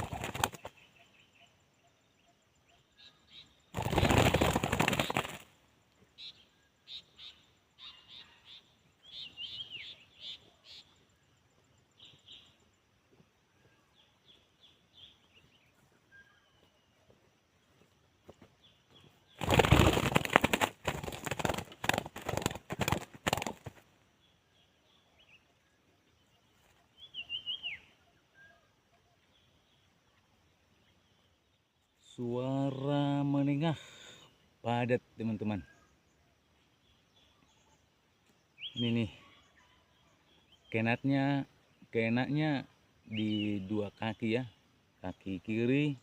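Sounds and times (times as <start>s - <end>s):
dove wings flapping: 0.0s - 0.8s, 3.7s - 5.6s, 19.3s - 23.9s
small birds chirping: 0.0s - 46.0s.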